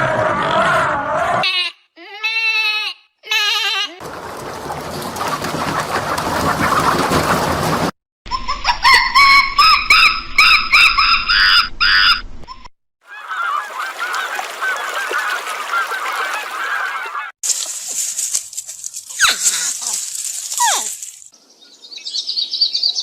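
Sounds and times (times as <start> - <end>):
flock of geese chattering: 4.0 - 7.9, 13.1 - 17.3
goose honking: 13.1 - 17.3.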